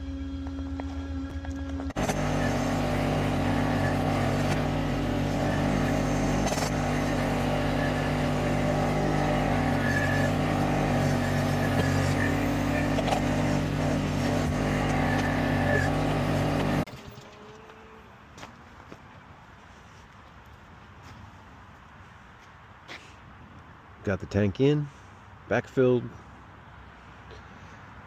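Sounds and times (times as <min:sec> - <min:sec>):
engine running steadily: 0:00.0 - 0:17.4.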